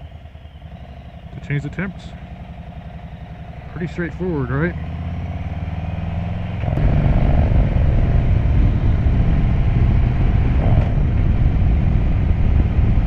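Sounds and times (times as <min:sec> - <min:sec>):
motorcycle engine running: 0:00.0 - 0:13.0
wind rushing over microphone: 0:05.5 - 0:13.0.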